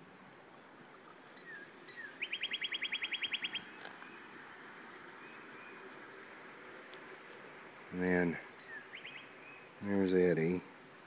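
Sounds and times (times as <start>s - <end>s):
bird whistles and trill: 1.4s - 3.7s.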